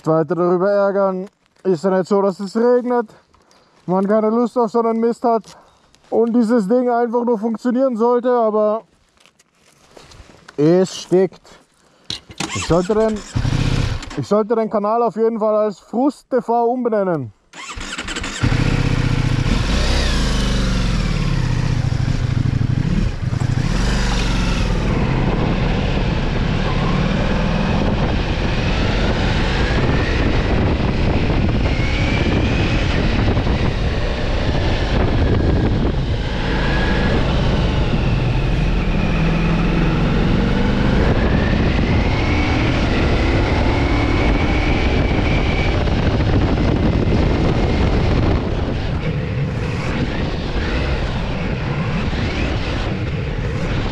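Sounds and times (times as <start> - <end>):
wind and road rush: 12.1 - 14.4, 17.5 - 53.9
motorcycle engine accelerating: 12.4 - 14.2, 17.6 - 53.9.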